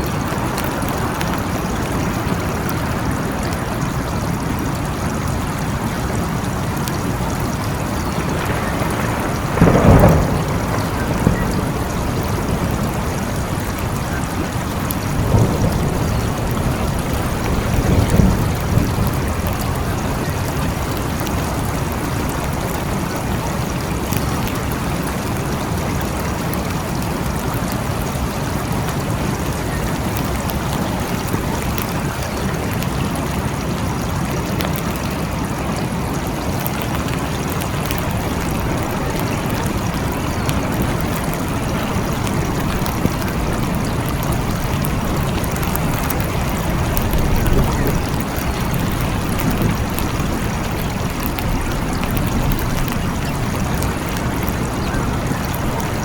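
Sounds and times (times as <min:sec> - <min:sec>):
low thunder rumble: 0:00.0 - 0:33.3, 0:37.0 - 0:56.0
steady rain: 0:00.0 - 0:56.0.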